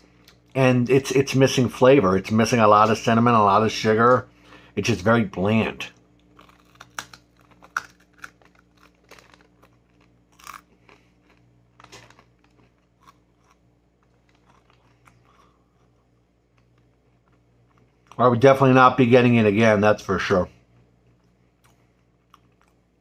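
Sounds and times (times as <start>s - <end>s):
close-up chewing: 6.2s - 18.2s, 21.0s - 22.9s
biting into food: 6.3s - 15.5s.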